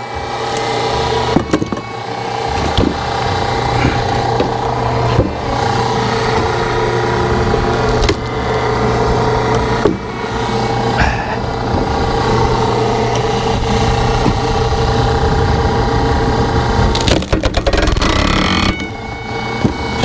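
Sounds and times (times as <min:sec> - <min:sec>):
log splitter engine running: 0:00.0 - 0:20.0
log cracking as it splits: 0:00.1 - 0:10.1, 0:16.8 - 0:18.9.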